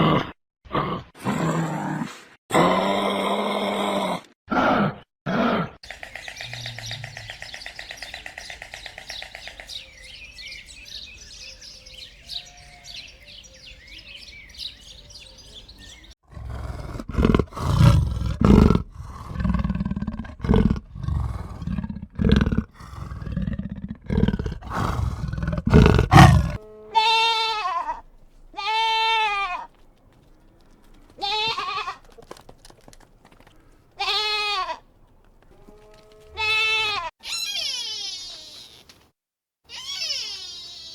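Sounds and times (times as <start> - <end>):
deep grunting animal calls: 2.5 - 27.4
sheep or goats bleating: 26.1 - 29.8, 31.2 - 32.2, 34.0 - 34.8, 35.5 - 38.8.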